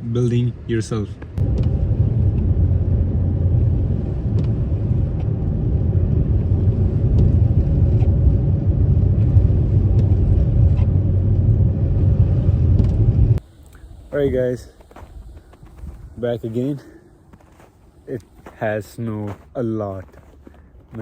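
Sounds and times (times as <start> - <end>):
car engine rumble in cabin: 1.3 - 13.4.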